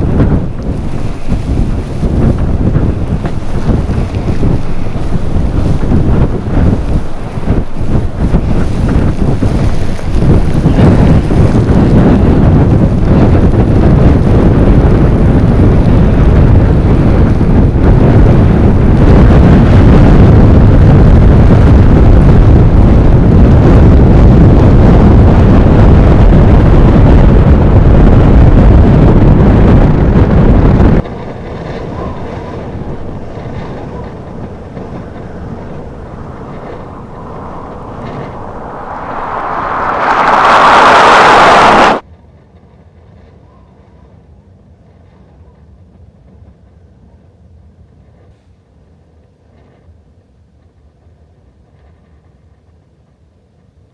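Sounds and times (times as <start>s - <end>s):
blizzard wind on microphone: 0.0s - 42.0s.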